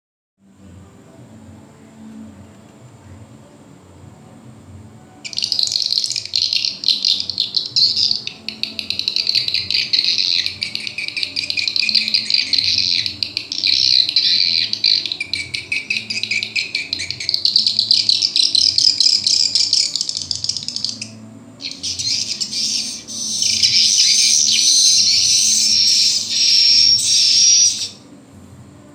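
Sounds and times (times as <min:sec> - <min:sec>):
recorded swiftlet twittering: 0:05.2 - 0:28.1.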